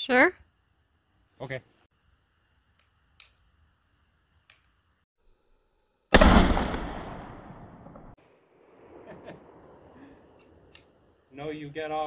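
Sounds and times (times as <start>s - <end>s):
shotgun shot: 6.1s - 8.2s
faint clicks: 10.4s - 11.0s.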